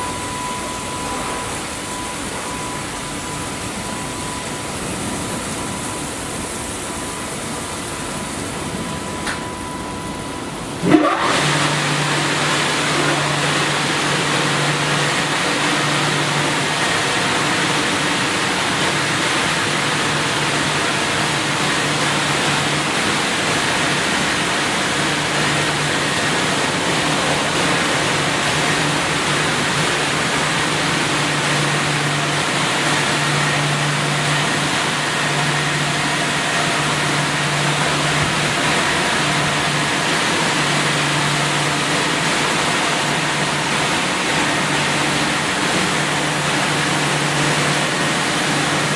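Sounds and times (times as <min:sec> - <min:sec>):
low motor hum: 0:00.0 - 0:48.9
spraying water hiss: 0:00.0 - 0:48.9.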